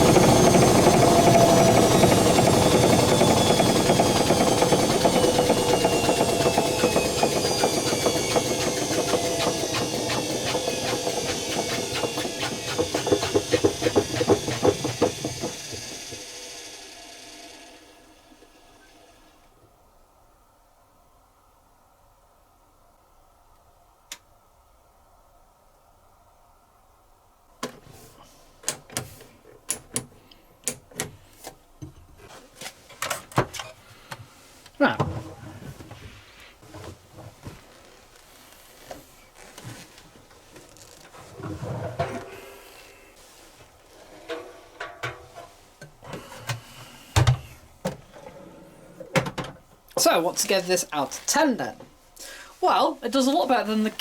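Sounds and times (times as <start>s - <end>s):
washing machine drum whine: 0.0s - 19.2s.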